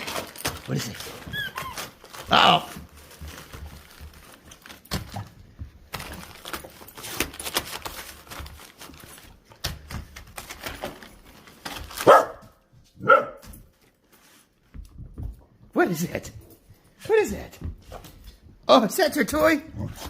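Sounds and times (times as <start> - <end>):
rustling: 0.0 - 15.6
dog barking: 12.0 - 13.5.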